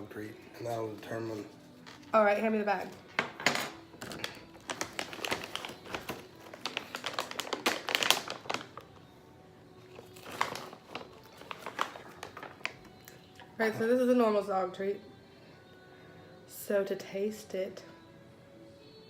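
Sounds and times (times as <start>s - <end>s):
treat bag crinkling: 4.0s - 9.0s, 9.9s - 13.2s.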